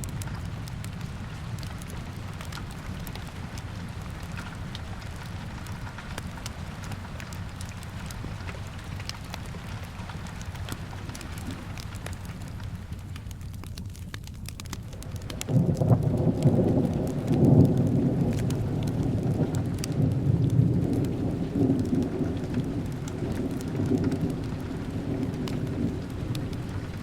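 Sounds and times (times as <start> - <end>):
steady rain: 0.0 - 27.0
wood fire crackling: 0.0 - 27.0
thunder rumbling: 14.5 - 27.0.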